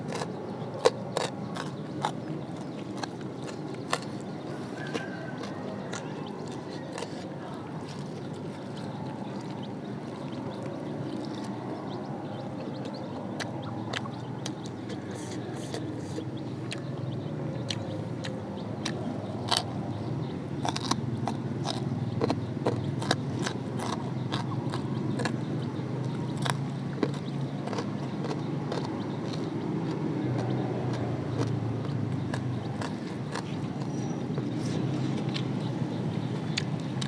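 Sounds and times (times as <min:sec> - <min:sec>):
chewing with mouth clicks: 0:00.0 - 0:37.0
steady low rumble: 0:07.7 - 0:37.0.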